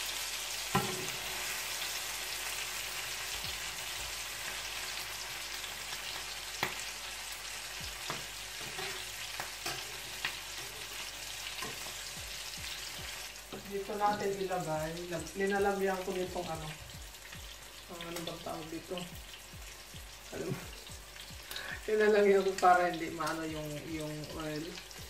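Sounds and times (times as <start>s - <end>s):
omelette sizzling in oil: 0.0s - 25.0s
spatula and fork clicking on pan: 8.0s - 10.8s.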